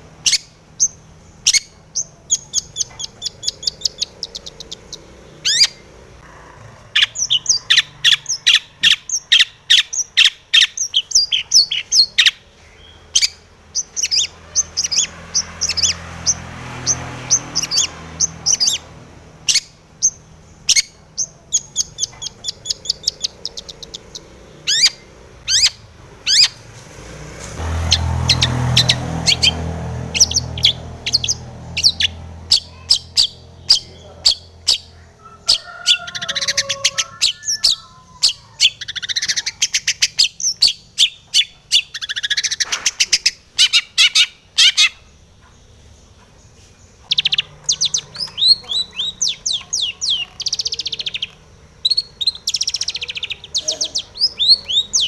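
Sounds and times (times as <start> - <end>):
bird singing sharp chirps and trills: 0.1 - 6.1, 6.8 - 26.7, 27.8 - 55.0.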